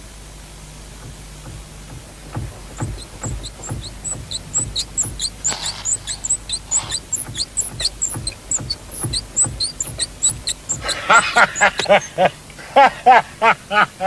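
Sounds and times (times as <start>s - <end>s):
high-pitched car squeak: 2.8s - 12.1s.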